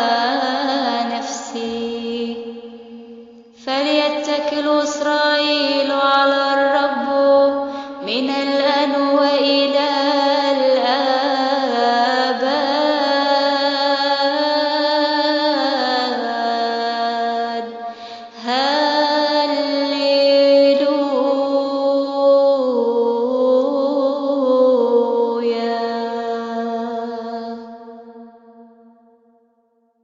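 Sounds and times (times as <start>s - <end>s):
woman singing chant: 0.0s - 28.6s
woman breathing: 7.6s - 8.0s, 17.8s - 18.4s.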